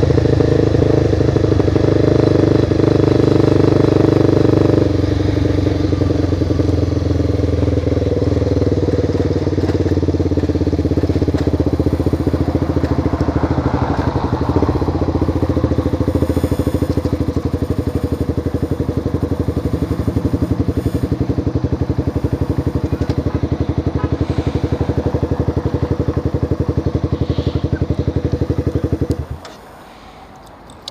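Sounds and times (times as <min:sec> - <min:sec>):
motorcycle engine idling: 0:00.0 - 0:29.8.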